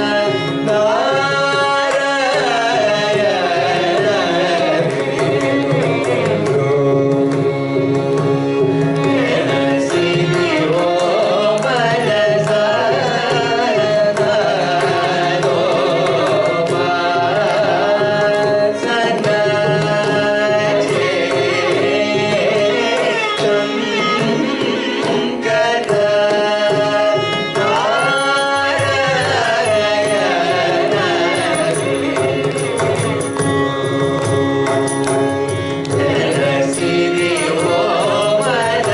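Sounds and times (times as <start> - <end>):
violin: 0.0 - 38.9.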